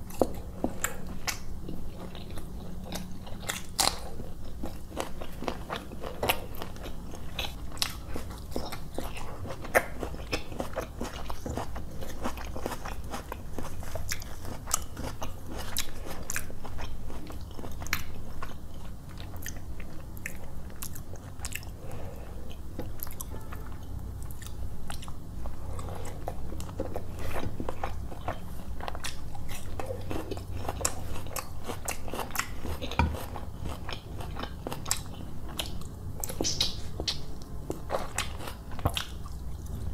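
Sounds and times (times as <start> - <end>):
person chewing wetly: 0.0 - 39.9.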